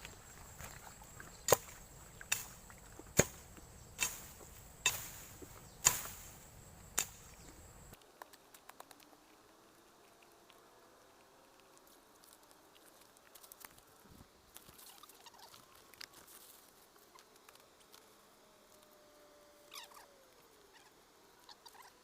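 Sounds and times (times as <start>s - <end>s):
background hiss: 0.0s - 22.0s
sharp knocks or chops: 1.5s - 7.4s.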